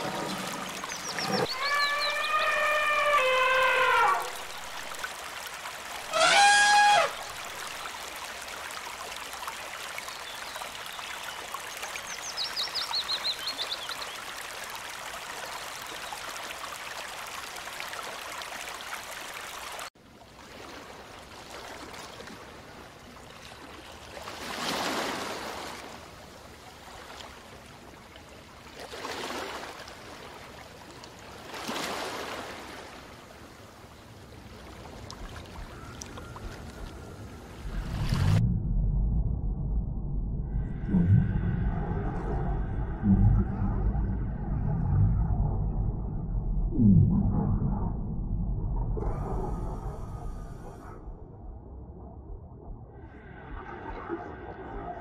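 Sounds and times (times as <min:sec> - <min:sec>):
water washing: 0:00.0 - 0:09.0
running water: 0:00.0 - 0:38.4
loud pitched call: 0:01.5 - 0:04.4, 0:06.1 - 0:07.2.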